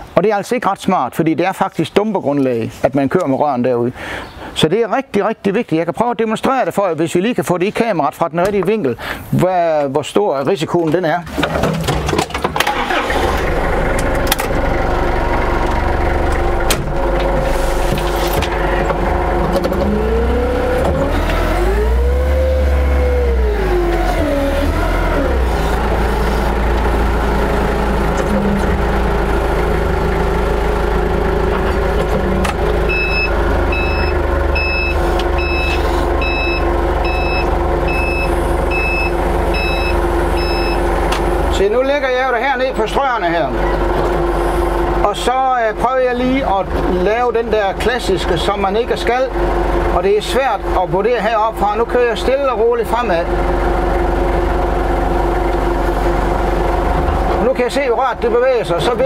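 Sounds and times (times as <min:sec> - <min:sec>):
forklift motor running: 0:11.3 - 0:59.0
reversing alarm beeps: 0:32.9 - 0:40.9.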